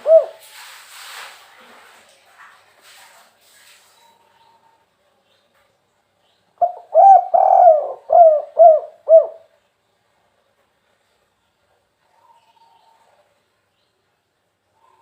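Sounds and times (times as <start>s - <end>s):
dove cooing: 0.0s - 0.4s, 6.6s - 9.5s.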